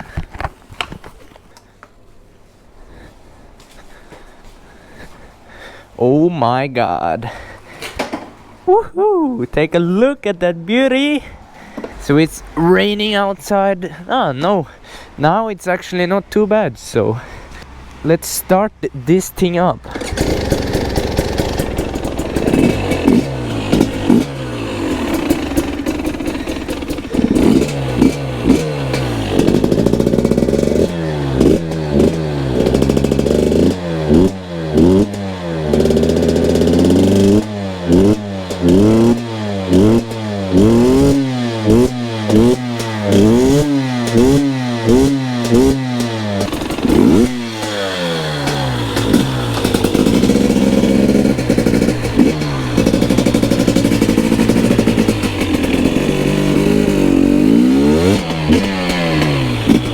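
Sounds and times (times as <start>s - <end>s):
dirt bike engine revving: 19.8s - 59.9s.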